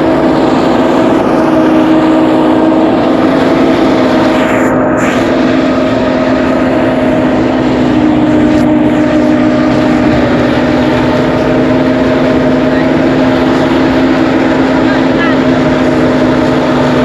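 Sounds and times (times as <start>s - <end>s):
thresher motor drone: 0.0s - 17.0s.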